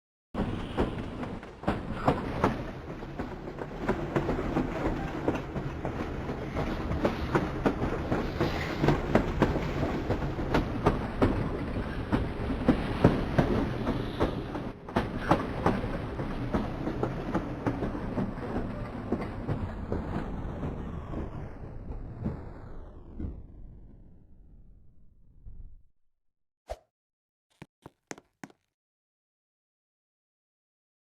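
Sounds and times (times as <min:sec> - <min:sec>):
train rumbling on rails: 0:00.4 - 0:24.5.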